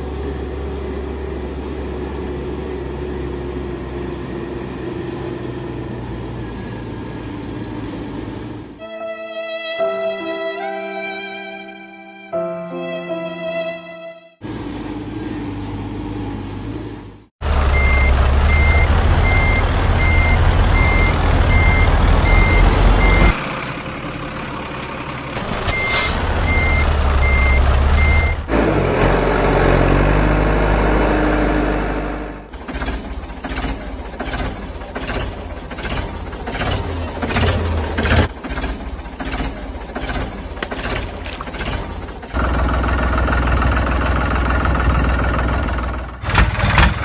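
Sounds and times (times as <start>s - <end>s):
loud low engine rumble: 0.0s - 8.8s, 14.4s - 40.9s, 41.5s - 47.0s
reversing alarm beeping: 17.7s - 23.4s, 25.5s - 28.4s.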